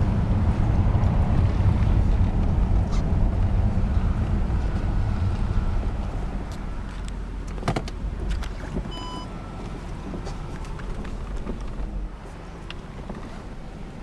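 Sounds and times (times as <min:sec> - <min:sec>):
car engine rumble in cabin: 0:00.0 - 0:14.0
short electronic beep: 0:08.9 - 0:09.3.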